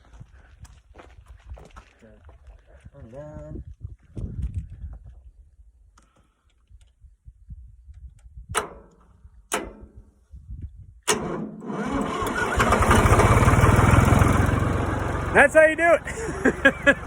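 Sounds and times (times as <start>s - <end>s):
tractor engine running: 11.1s - 17.0s
tractor engine turning over: 11.1s - 17.0s.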